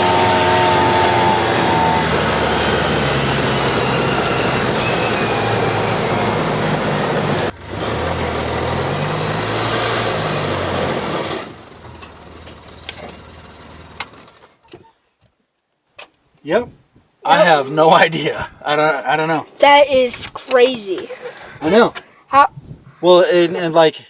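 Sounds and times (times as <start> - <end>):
utility vehicle engine running: 0.0 - 14.6
wind noise: 22.4 - 23.0.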